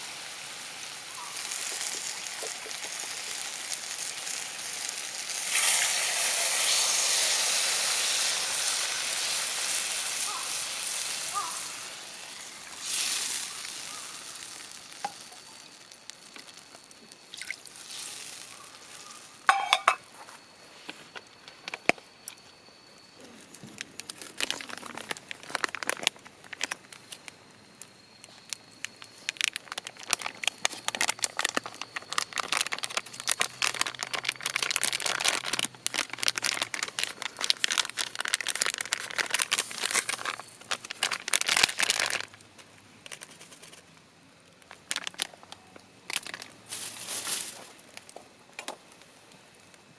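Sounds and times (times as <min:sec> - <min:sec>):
food sizzling in a pan: 0:00.0 - 0:20.0
wood fire crackling and popping: 0:00.6 - 0:07.4, 0:12.2 - 0:19.1, 0:23.5 - 0:43.2
metal clinks: 0:19.5 - 0:20.0.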